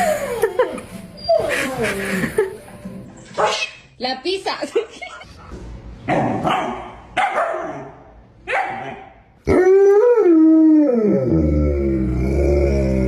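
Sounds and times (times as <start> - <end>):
dog barking: 3.4 - 3.8, 6.1 - 9.2.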